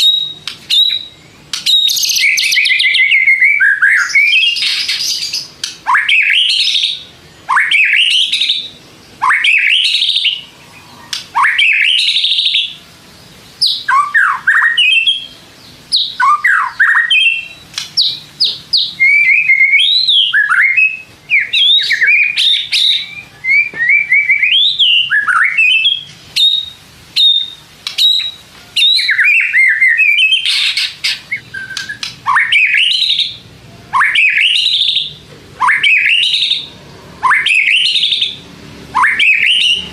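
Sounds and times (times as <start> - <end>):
sharp clicking bird notes: 0.0 - 3.2, 3.8 - 6.8, 11.0 - 12.2, 16.3 - 18.9, 27.3 - 28.4, 30.0 - 33.2
bird singing whistled phrases: 0.0 - 12.8, 13.6 - 39.9.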